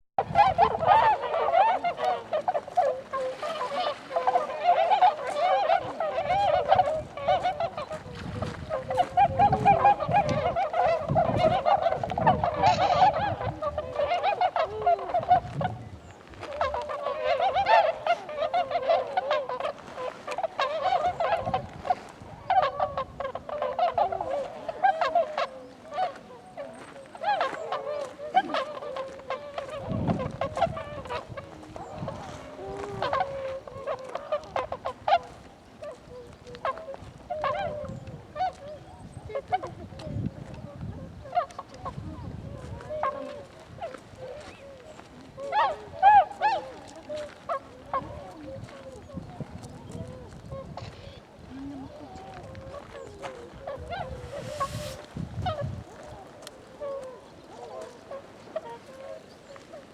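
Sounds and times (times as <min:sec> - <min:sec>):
swans honking: 0:00.2 - 0:59.9.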